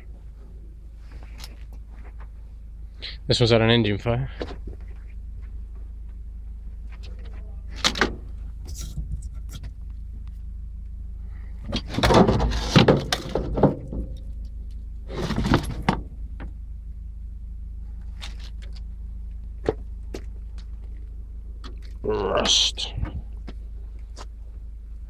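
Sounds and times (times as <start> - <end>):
steady low rumble: 0.0 - 25.0
metal parts knocking and clattering: 11.7 - 14.4.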